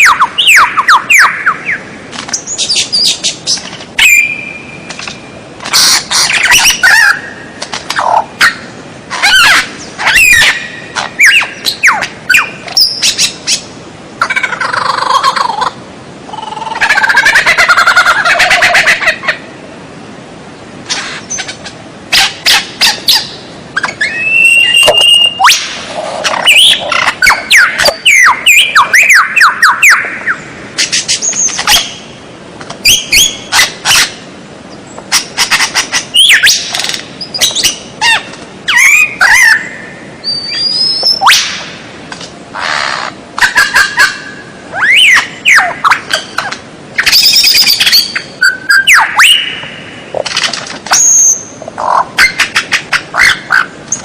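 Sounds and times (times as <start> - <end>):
bird singing varied song: 0.0 - 13.7, 22.2 - 25.7, 26.3 - 32.2, 32.8 - 33.8, 34.7 - 41.6, 43.4 - 50.2.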